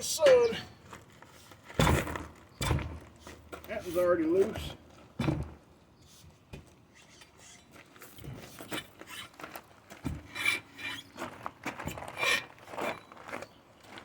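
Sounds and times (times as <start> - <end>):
tools scraping rubber tire: 6.0 - 13.3.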